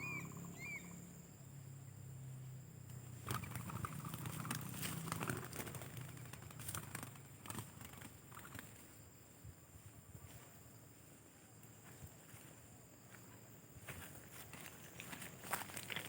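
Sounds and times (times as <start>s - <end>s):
rustling and crackling: 3.2s - 8.9s, 14.3s - 16.0s.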